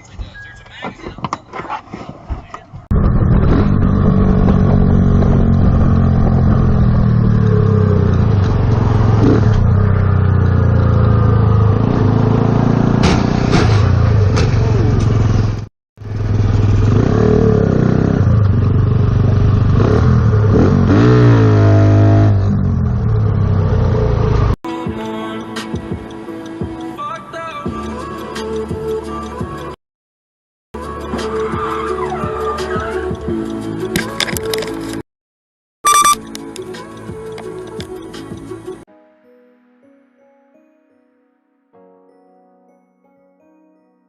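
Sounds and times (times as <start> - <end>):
vehicle engine and road noise: 0.0 - 24.6, 33.3 - 35.0.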